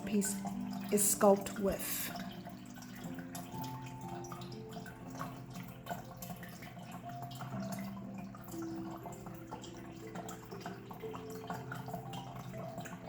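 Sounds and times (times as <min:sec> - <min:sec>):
water dripping and trickling: 0:00.0 - 0:13.0.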